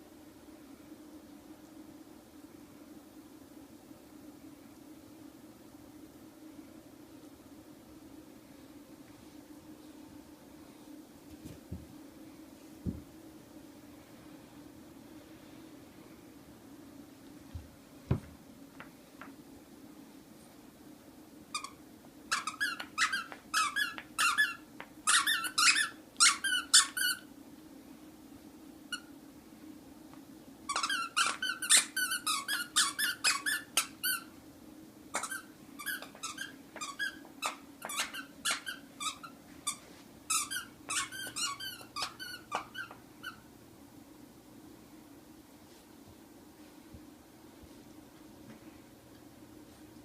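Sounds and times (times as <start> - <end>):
faint low hum: 0.0 - 50.0
squeaky toy squeaking: 21.6 - 27.2, 30.7 - 34.3, 35.1 - 43.4.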